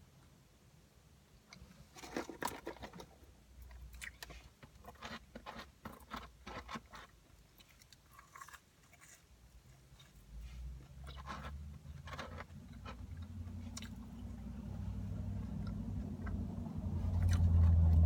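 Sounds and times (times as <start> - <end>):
person chewing crunchy food: 3.8 - 18.0.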